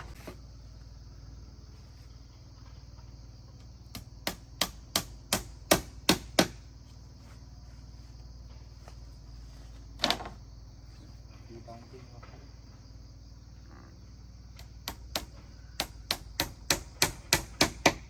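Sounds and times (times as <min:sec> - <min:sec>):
hammering on wood: 0:03.9 - 0:06.6, 0:14.8 - 0:18.0.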